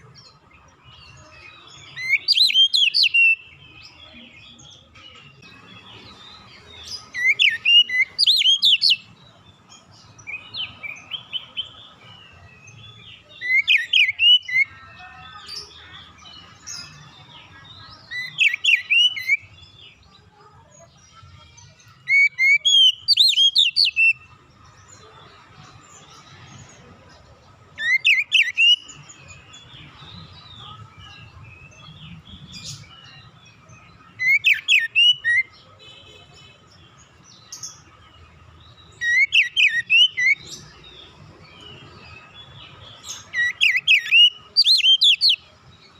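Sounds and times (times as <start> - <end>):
bird whistled song: 1.8 - 4.0, 6.5 - 9.1, 12.6 - 14.8, 18.0 - 19.5, 22.0 - 24.3, 27.8 - 30.4, 34.2 - 35.6, 38.8 - 40.9, 41.6 - 45.5.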